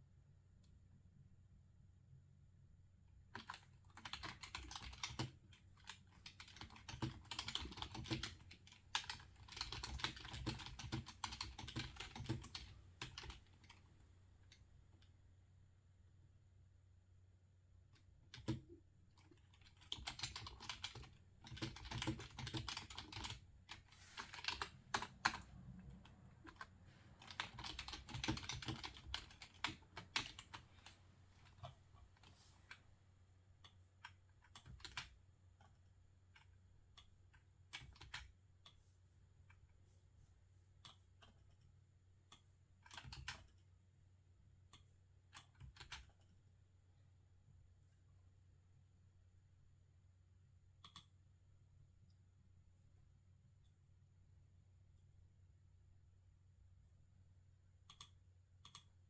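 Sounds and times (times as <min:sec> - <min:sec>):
computer keyboard typing: 0:03.4 - 0:13.8, 0:18.3 - 0:32.8, 0:33.6 - 0:35.8, 0:36.4 - 0:38.3, 0:42.8 - 0:43.6, 0:45.3 - 0:46.2.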